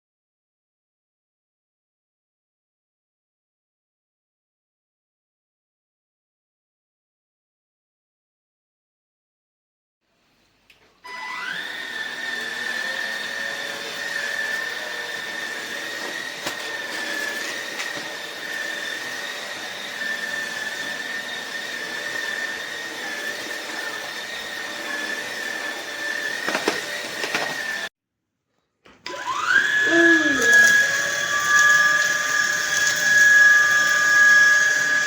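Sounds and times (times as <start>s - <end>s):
stick vacuum motor whining: 11.0s - 27.9s, 29.0s - 35.0s.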